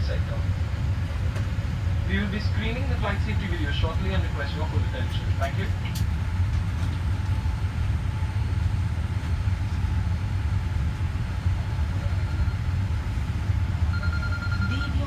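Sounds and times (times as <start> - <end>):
airliner cabin drone: 0.0 - 15.0.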